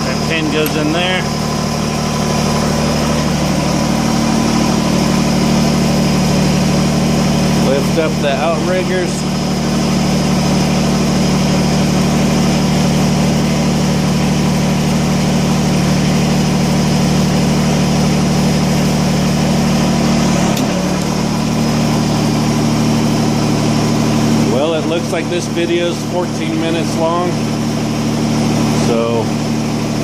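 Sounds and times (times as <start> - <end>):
hydraulics raising outriggers: 0.0 - 11.2
tractor diesel engine running: 0.0 - 30.0.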